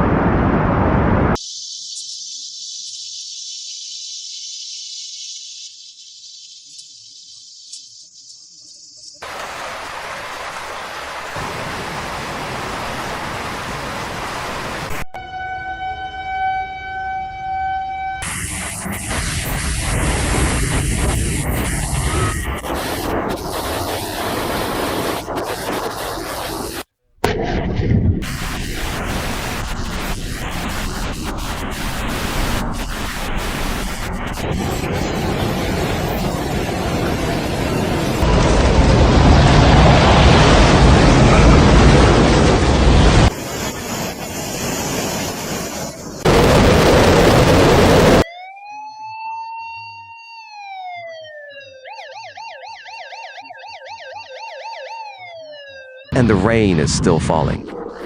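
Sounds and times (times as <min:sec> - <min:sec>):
water rushing: 0:09.2 - 0:15.0
emergency vehicle siren: 0:11.4 - 0:24.3, 0:46.2 - 0:56.6.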